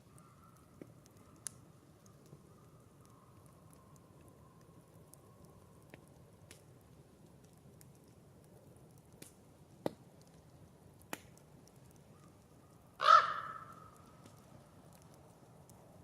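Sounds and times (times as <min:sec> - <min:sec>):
campfire crackling: 0:00.0 - 0:16.0
fire popping: 0:00.0 - 0:16.0
crow cawing: 0:13.0 - 0:14.0.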